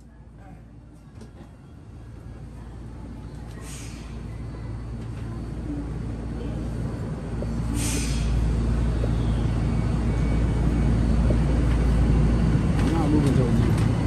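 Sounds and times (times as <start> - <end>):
train carriage rumbling: 0.0 - 14.0
brief hiss: 7.7 - 8.4.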